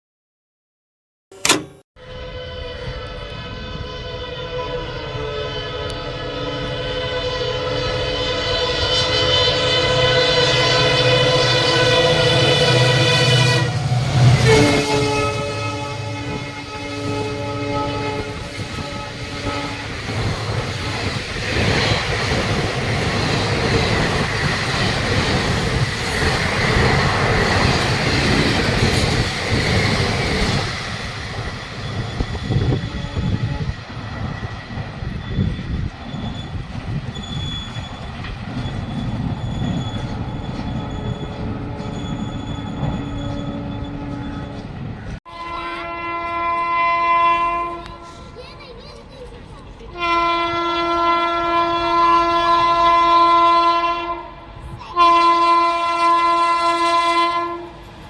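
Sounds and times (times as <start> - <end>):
train horn blast: 1.4 - 24.6, 32.3 - 33.8, 42.8 - 48.4, 49.9 - 57.8
locomotive long horn: 1.4 - 25.3, 32.3 - 33.9, 40.8 - 48.4, 49.9 - 57.8
train wheels clattering: 16.2 - 45.6.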